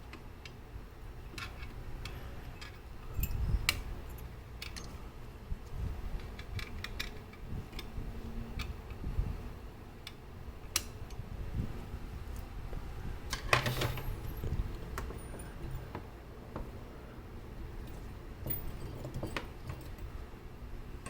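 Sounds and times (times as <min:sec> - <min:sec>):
small metal parts clicking: 0:01.3 - 0:05.0, 0:06.2 - 0:08.0, 0:17.8 - 0:20.1.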